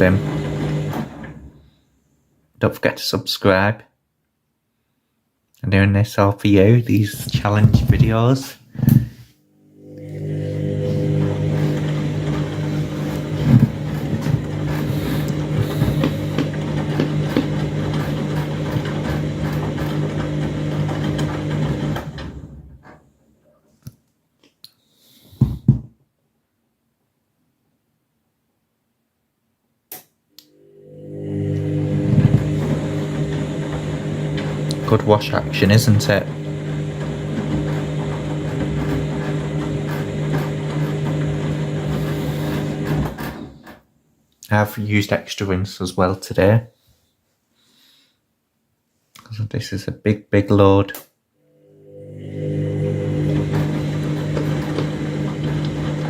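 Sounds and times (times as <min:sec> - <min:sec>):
washing machine motor spinning: 0:00.0 - 0:01.7, 0:08.8 - 0:23.1, 0:30.4 - 0:43.9, 0:51.4 - 0:56.0.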